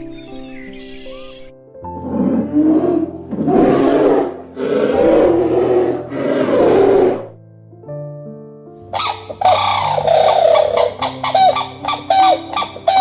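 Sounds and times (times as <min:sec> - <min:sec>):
background music: 0:00.0 - 0:13.0
big cat roaring: 0:02.0 - 0:07.4.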